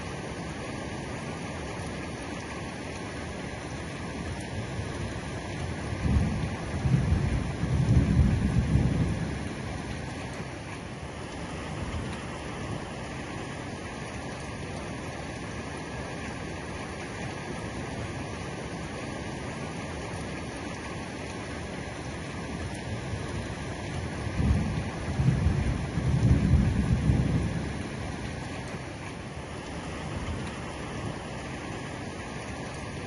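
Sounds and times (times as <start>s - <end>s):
heavy rain on roof: 0.0s - 33.0s
low roll of thunder: 5.9s - 9.9s, 23.0s - 28.3s.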